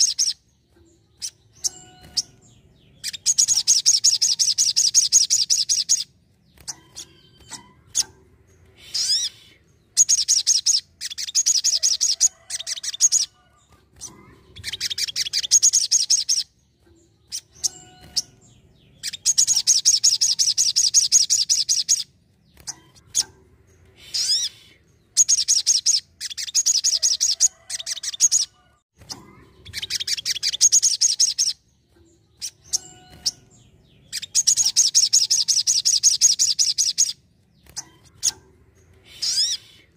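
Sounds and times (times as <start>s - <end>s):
faint bird chirps: 0.0s - 39.9s
songbird trilling: 39.1s - 39.7s.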